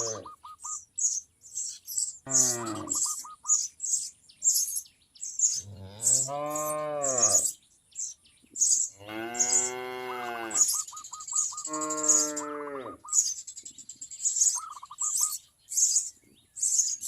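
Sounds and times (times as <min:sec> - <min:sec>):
cow mooing: 0:00.0 - 0:00.2, 0:02.3 - 0:03.0, 0:05.7 - 0:07.5, 0:09.0 - 0:10.7, 0:11.7 - 0:13.0
small birds chirping: 0:00.0 - 0:17.0.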